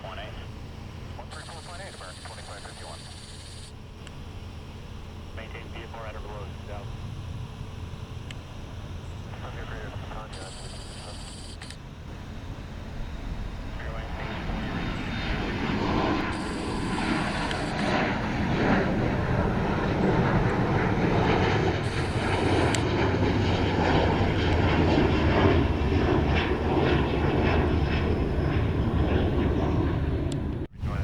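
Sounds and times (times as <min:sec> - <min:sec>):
jet airliner engines rumbling: 0:00.0 - 0:31.0.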